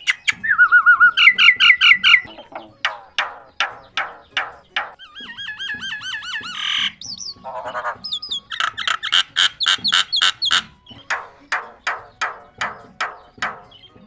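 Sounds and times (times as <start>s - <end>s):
myna squawks and whistles: 0.0s - 3.3s, 4.9s - 11.3s.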